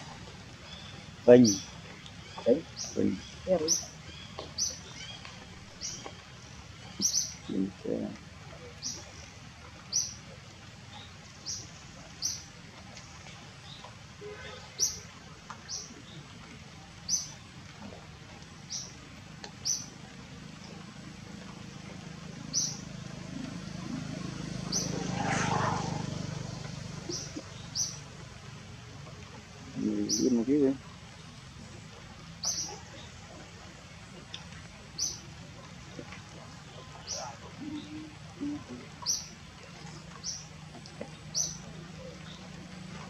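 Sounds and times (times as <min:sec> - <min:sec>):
small bird chirping: 0:06.8 - 0:07.6, 0:22.5 - 0:22.8, 0:27.0 - 0:28.0, 0:32.4 - 0:32.8.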